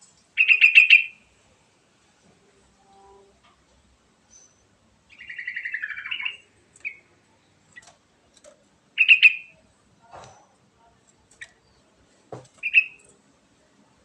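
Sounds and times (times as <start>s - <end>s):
bulbul singing: 0.4s - 1.2s, 4.3s - 8.0s, 9.0s - 9.6s, 12.6s - 13.2s.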